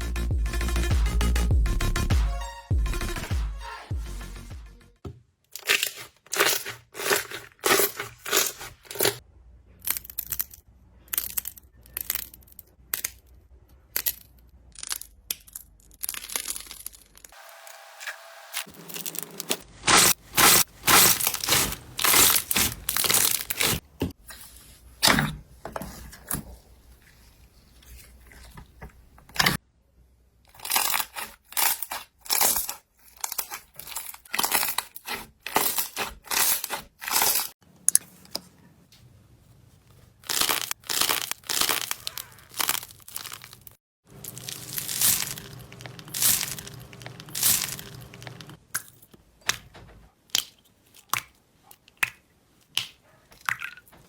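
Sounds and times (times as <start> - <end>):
slime crackling and tearing: 5.6 - 9.2, 18.7 - 23.8, 30.5 - 37.5, 40.2 - 48.6.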